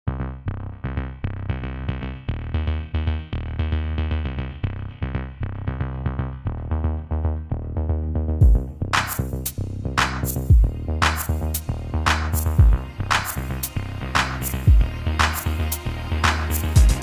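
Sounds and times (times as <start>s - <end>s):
synthesizer notes: 6.4s - 17.0s
drum-machine beat: 8.4s - 17.0s.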